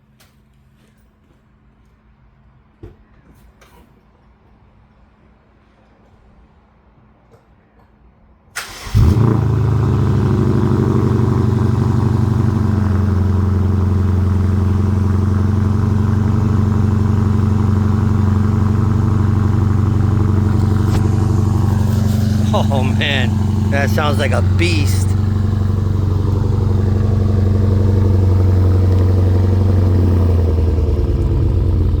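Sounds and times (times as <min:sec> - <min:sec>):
car engine starting and idling: 0:08.5 - 0:32.0.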